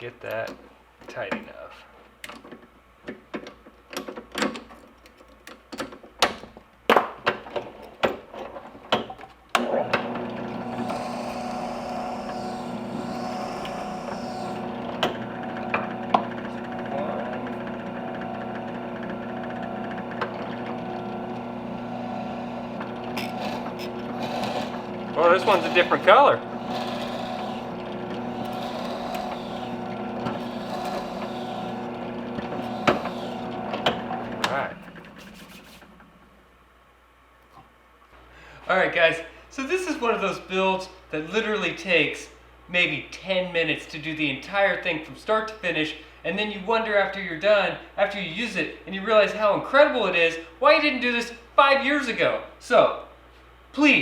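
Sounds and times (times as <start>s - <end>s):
drill bit boring into ball: 9.6s - 35.8s
drill press motor hum: 9.6s - 36.4s.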